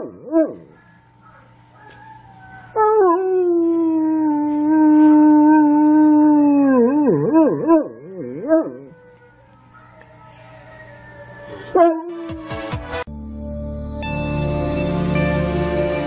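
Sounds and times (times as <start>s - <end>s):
dog howling: 0.0s - 12.4s.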